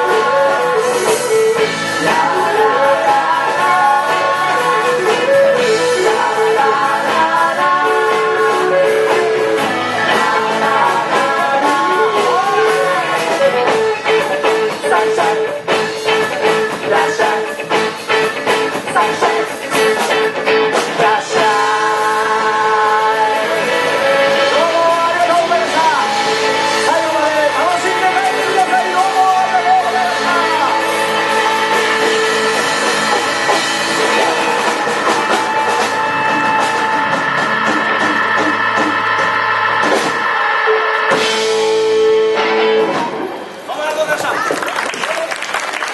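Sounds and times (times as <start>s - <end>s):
drum kit: 0.0s - 43.7s
guitar playing: 0.0s - 43.7s
upbeat band music with singing: 0.0s - 45.9s.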